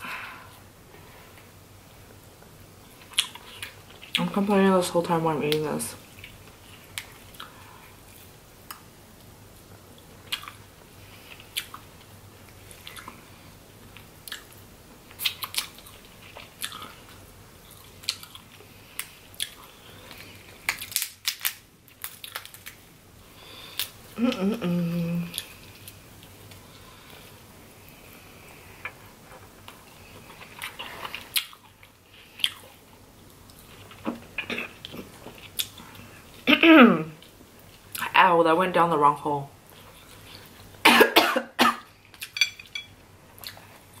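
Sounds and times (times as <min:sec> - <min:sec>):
crab shells cracking: 0:20.2 - 0:22.8.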